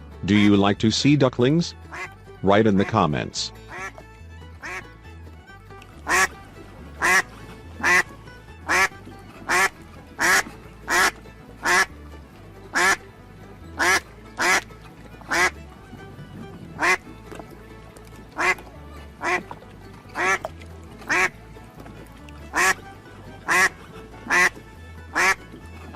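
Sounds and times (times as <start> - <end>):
background music with bass: 0.0 - 25.9
duck quacking: 1.9 - 4.0, 4.6 - 4.9, 6.0 - 6.4, 7.0 - 12.0, 12.7 - 13.1, 13.8 - 14.7, 15.3 - 15.6, 16.7 - 17.1, 18.3 - 21.4, 22.5 - 25.5.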